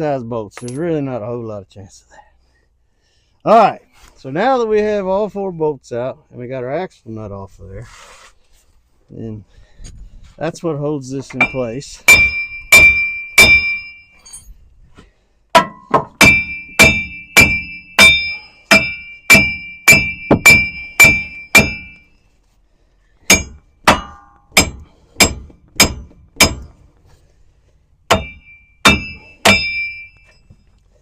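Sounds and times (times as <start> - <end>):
hammer striking metal hub: 11.2 - 14.4, 15.5 - 22.0, 23.3 - 26.7, 28.1 - 30.5.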